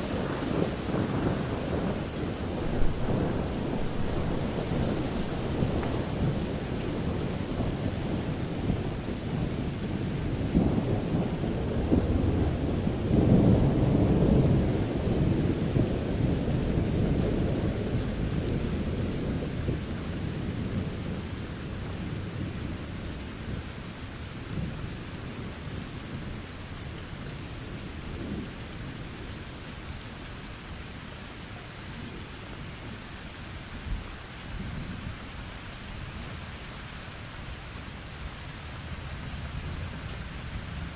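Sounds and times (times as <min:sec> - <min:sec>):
rolling thunder: 0:00.0 - 0:29.7
steady rain: 0:00.0 - 0:40.9.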